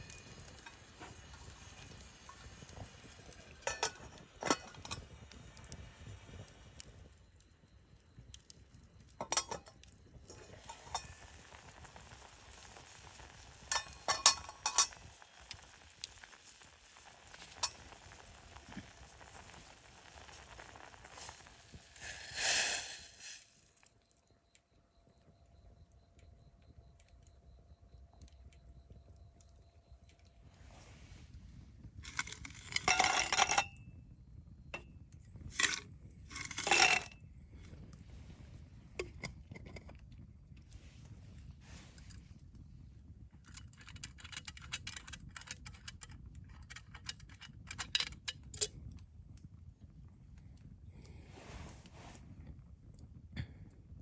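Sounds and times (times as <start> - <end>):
wood fire crackling: 0.0 - 23.9, 30.4 - 33.8, 35.3 - 40.0, 50.3 - 52.7
metal clattering and clinking: 3.6 - 5.0, 9.2 - 9.8, 13.7 - 15.0, 32.1 - 33.7, 35.5 - 37.1.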